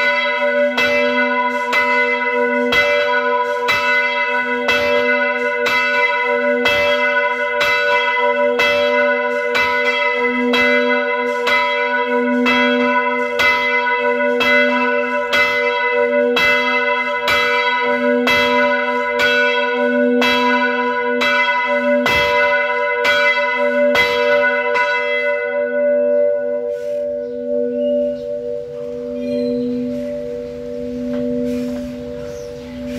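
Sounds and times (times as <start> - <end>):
bell ringing: 27.2 - 32.9.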